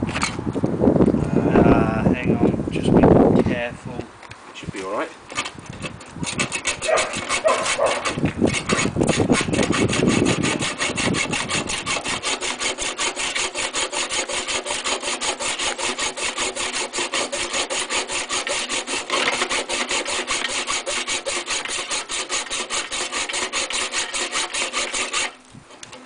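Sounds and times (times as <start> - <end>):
hacksaw sawing: 5.3 - 25.4.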